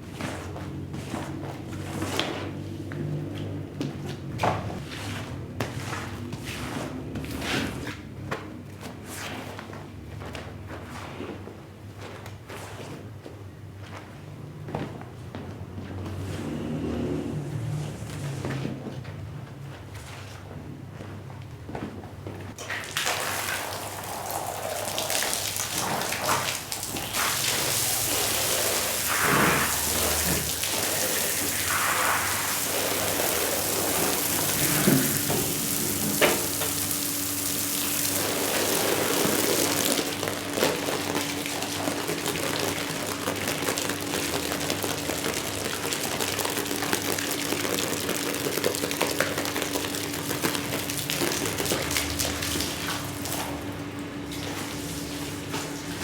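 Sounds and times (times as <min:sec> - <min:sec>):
water spraying onto rug: 0:22.6 - 0:56.0.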